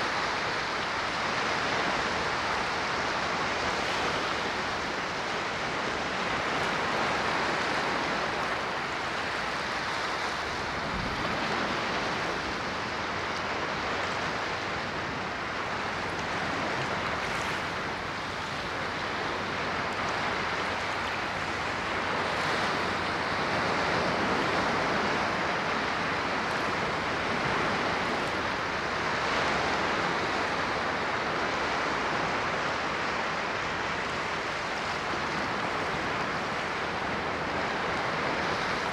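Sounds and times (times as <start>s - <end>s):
ocean waves washing onto shore: 0.0s - 38.9s.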